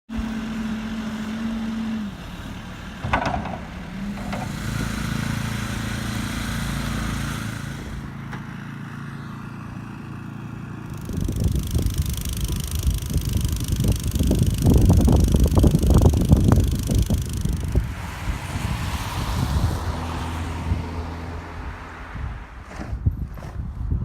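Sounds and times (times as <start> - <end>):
motor engine running: 0.1 - 20.3
scrape or knock: 22.7 - 23.0.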